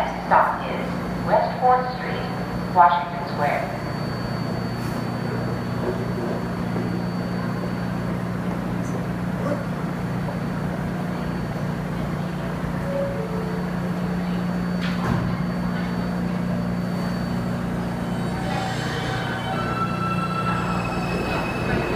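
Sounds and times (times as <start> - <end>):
subway train humming: 0.0 - 21.9.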